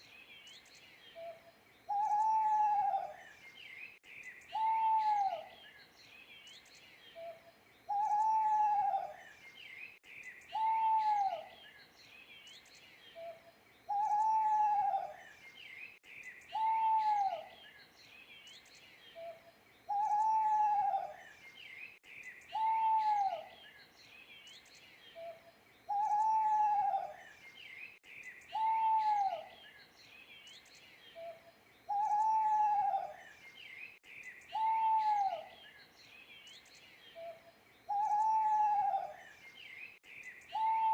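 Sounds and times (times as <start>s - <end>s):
small birds chirping: 0.0s - 40.9s
owl hooting: 1.9s - 3.2s, 4.5s - 5.5s, 7.9s - 9.2s, 10.5s - 11.5s, 13.2s - 15.2s, 16.5s - 17.5s, 19.2s - 21.2s, 22.5s - 23.5s, 25.2s - 27.2s, 28.5s - 29.5s, 31.2s - 33.2s, 34.5s - 35.6s, 37.2s - 39.2s, 40.5s - 40.9s.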